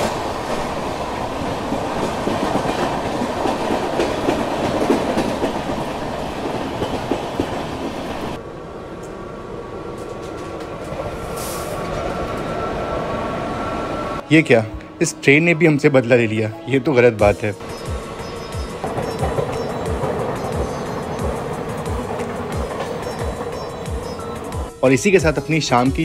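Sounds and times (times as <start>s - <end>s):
clickety-clack of rail joints: 0.0s - 8.4s, 9.9s - 12.7s, 17.6s - 24.7s
train wheels rumbling on rails: 0.0s - 14.2s, 17.3s - 25.4s
electric locomotive whine: 0.0s - 24.8s.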